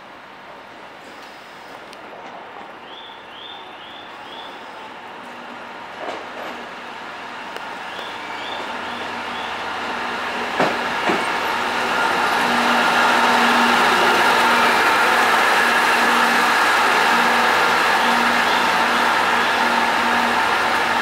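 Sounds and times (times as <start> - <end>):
diesel railcar passing: 0.0 - 21.0.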